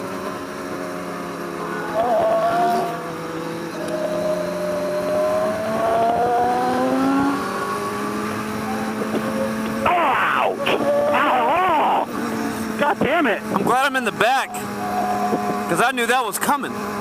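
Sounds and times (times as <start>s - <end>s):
motorcycle engine accelerating: 0.0s - 17.0s
person speaking loudly: 9.8s - 12.1s, 12.7s - 14.8s, 15.6s - 16.8s.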